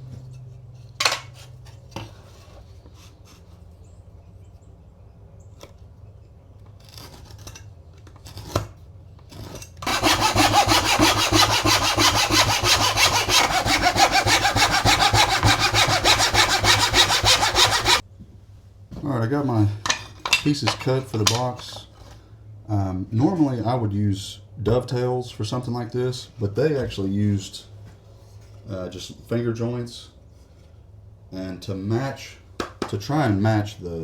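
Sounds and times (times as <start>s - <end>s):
knocks of handling wood: 0.9s - 2.6s, 19.8s - 21.9s, 32.6s - 33.0s
hand saw cutting wood: 8.2s - 18.0s.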